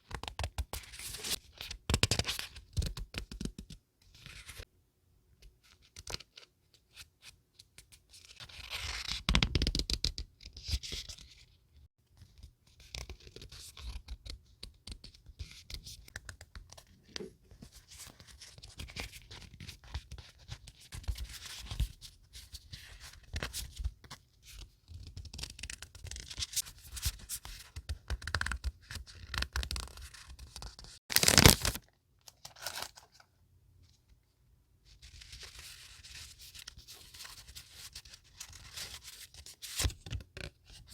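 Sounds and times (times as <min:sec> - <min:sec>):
paper rustling: 0:30.2 - 0:33.2.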